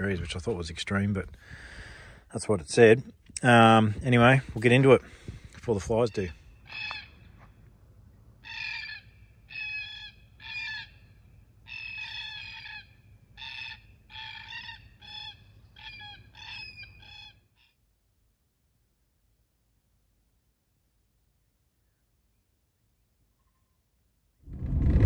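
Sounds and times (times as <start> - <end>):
bird calling: 6.0 - 7.7, 8.4 - 17.8.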